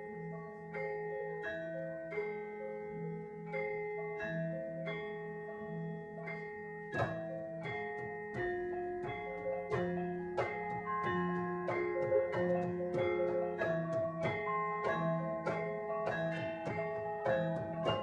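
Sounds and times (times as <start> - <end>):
ringing melodic notes: 0.0 - 18.0
sharp percussive hits: 7.0 - 18.0.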